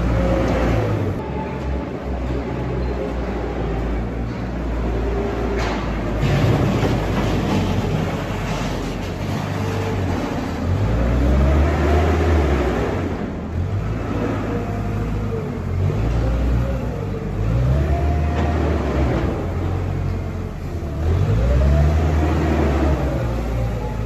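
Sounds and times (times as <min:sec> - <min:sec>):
engine revving: 0:10.6 - 0:20.1, 0:20.9 - 0:24.0.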